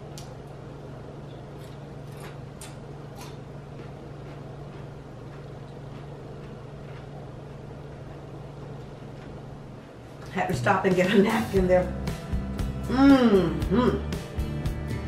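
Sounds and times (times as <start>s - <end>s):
chips crunching as chewed: 1.6s - 7.3s.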